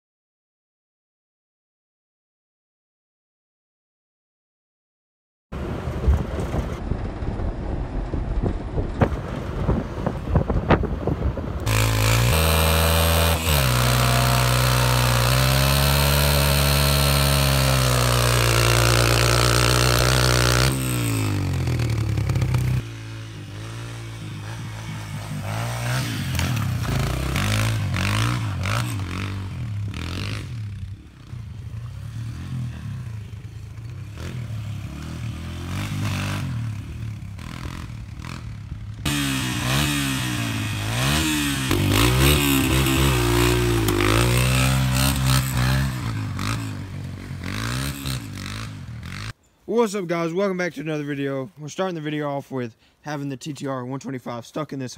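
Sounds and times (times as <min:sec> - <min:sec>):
motorbike engine revving: 0:11.6 - 0:49.4.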